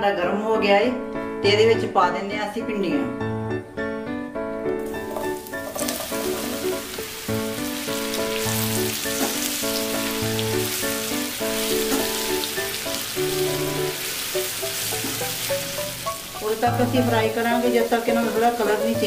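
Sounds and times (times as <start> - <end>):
background music: 0.0 - 19.0
okra sizzling in hot oil: 4.8 - 19.0.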